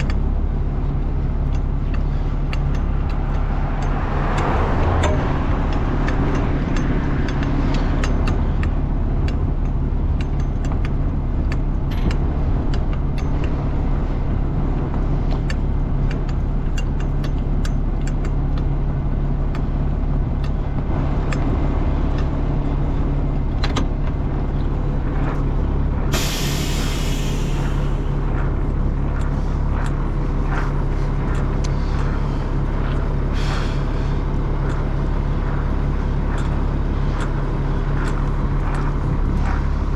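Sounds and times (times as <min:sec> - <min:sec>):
heavy diesel engine running: 0:00.0 - 0:39.9
air release hiss: 0:26.1 - 0:28.2
clicks and clatter: 0:27.3 - 0:39.9.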